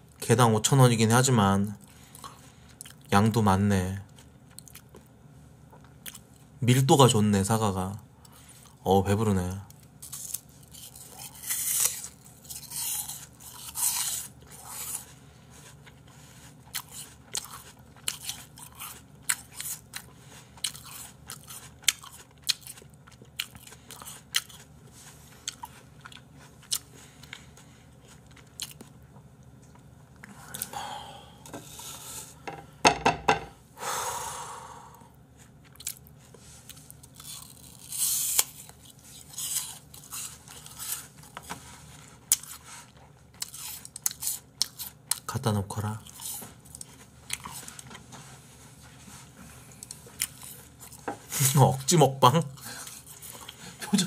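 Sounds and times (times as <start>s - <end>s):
crunching raw apple: 9.6s - 15.1s, 35.6s - 41.5s.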